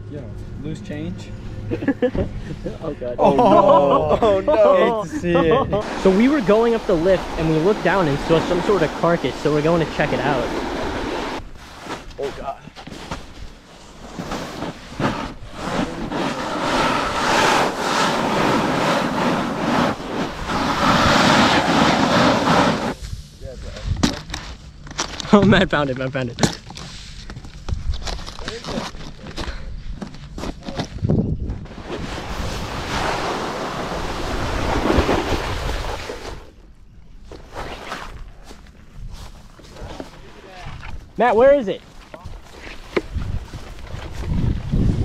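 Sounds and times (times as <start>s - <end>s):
wind rushing over microphone: 4.0s - 11.6s, 15.0s - 24.1s, 30.9s - 36.6s, 43.0s - 45.0s
snowboard scraping over slushy snow: 4.5s - 11.4s, 14.0s - 23.0s, 31.7s - 36.5s
wind buffeting microphone: 30.9s - 36.0s, 43.0s - 45.0s.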